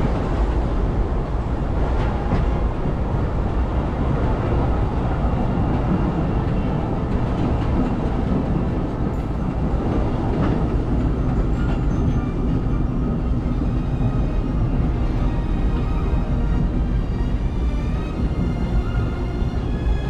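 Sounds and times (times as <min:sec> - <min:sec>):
steam train wheels rumbling: 0:00.0 - 0:20.0.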